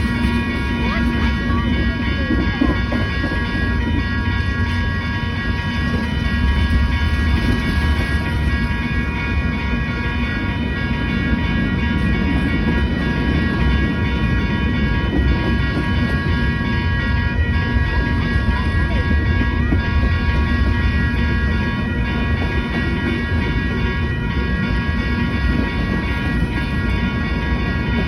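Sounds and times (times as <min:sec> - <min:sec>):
freight train wheels rumbling: 0:00.0 - 0:28.0
high-pitched ringing tone: 0:00.0 - 0:28.0.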